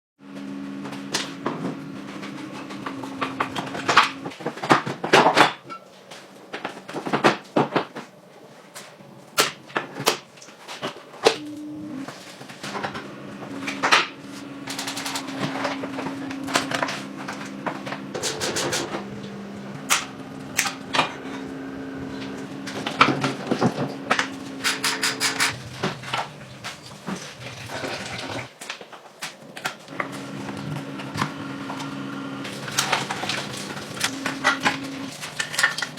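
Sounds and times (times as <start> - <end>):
steady low hum: 11.4 - 28.5
hand tools and metal parts clinking: 22.7 - 27.4.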